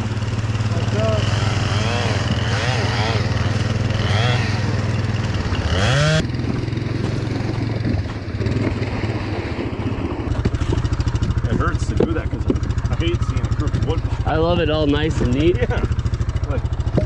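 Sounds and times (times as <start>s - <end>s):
chainsaw cutting wood: 0.0s - 8.8s, 10.3s - 12.7s
steady engine hum: 0.0s - 17.0s.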